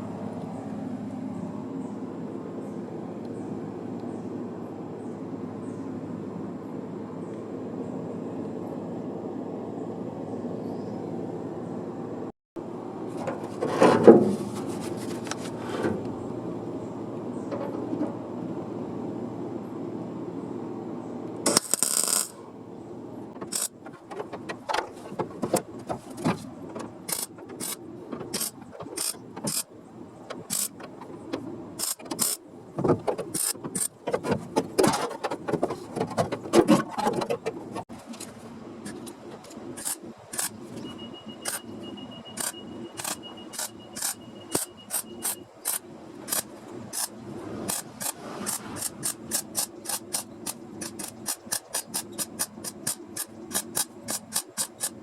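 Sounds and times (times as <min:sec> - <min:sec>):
steady mechanical hum: 0:00.0 - 0:55.0
sharp metallic clicks and taps: 0:30.3 - 0:34.7, 0:42.4 - 0:55.0.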